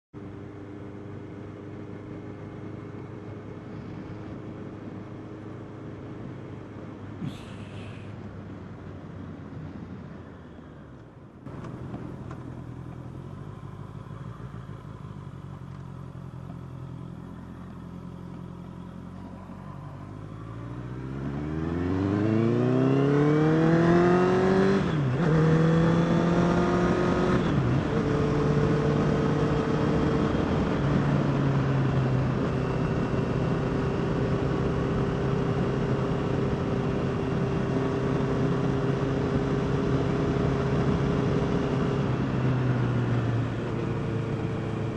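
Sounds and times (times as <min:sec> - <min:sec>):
motorcycle engine accelerating: 0:11.5 - 0:44.9.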